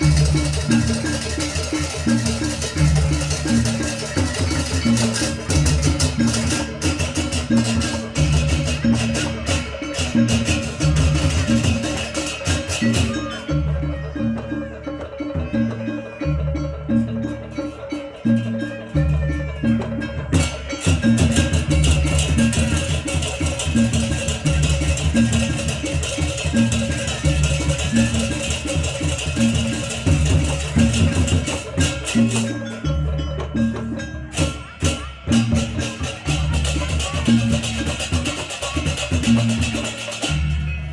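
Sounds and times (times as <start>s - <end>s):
gamelan percussion music: 0.0s - 40.9s.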